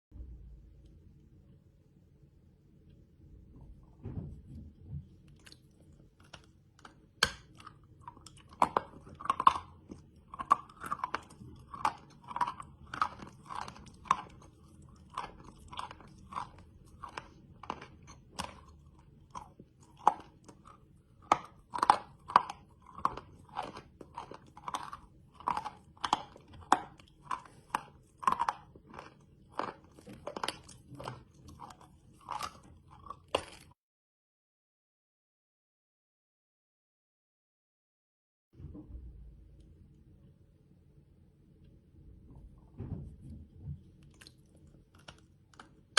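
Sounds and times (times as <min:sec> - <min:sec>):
chewing crisp crunches: 0:05.3 - 0:33.8, 0:44.0 - 0:45.9
candy snapping: 0:06.2 - 0:14.4.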